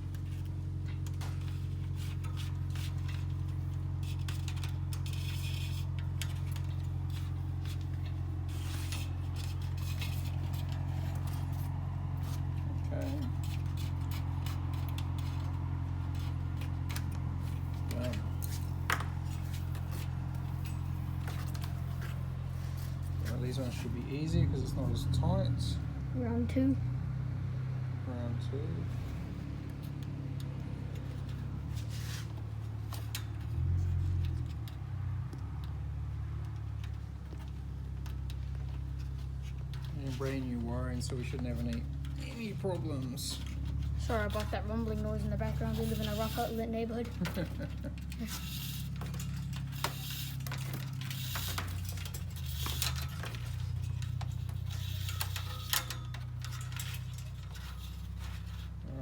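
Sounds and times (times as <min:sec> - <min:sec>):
low background rumble: 0:36.9 - 0:59.0.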